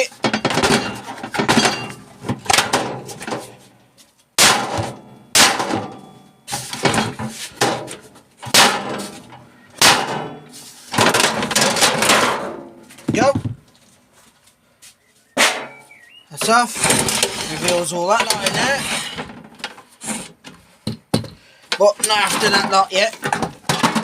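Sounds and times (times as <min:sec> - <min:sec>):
hammer striking metal: 0:04.4 - 0:06.2.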